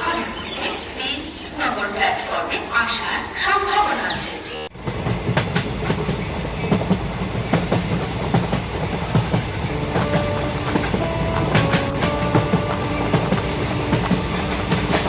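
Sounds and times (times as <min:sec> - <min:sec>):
train wheels clattering: 0:04.8 - 0:15.0
held tones: 0:09.7 - 0:15.0.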